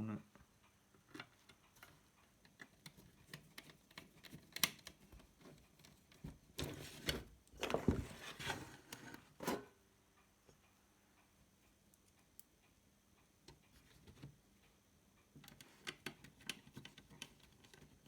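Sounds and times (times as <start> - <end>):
light clicks and taps: 1.0 - 7.2, 15.2 - 18.0
rustling and scraping: 5.2 - 9.7.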